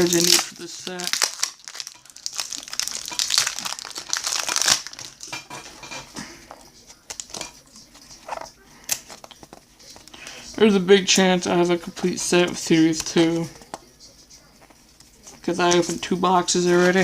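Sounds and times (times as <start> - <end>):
wrapper crinkling: 0.0 - 5.5
cards rustling and clicking: 0.0 - 10.3.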